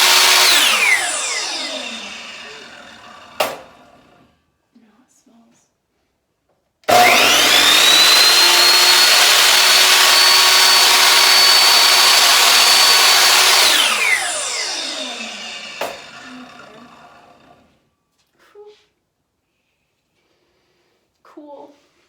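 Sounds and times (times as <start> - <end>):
miter saw blade whine: 0.0 - 4.2, 6.9 - 17.7.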